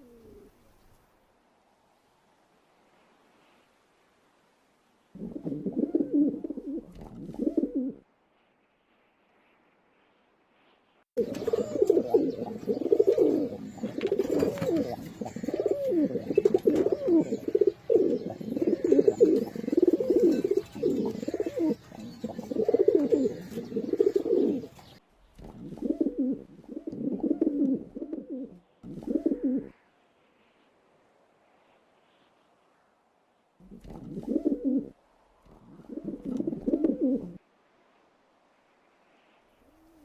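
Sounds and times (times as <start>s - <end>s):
pigeons cooing: 0.0s - 0.6s, 5.2s - 8.0s, 11.2s - 29.8s, 33.6s - 37.4s.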